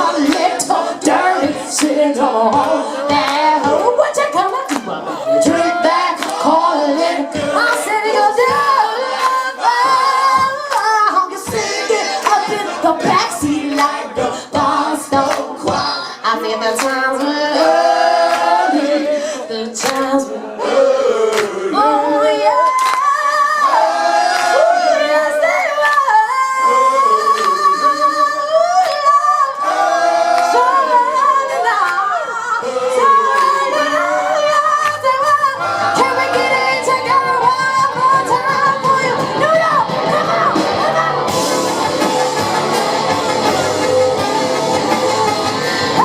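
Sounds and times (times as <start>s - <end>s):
drums: 0.0s - 19.2s, 30.0s - 46.0s
woman singing: 0.0s - 20.6s, 21.7s - 23.8s, 24.5s - 29.6s, 30.4s - 41.5s
bass guitar: 35.6s - 46.0s.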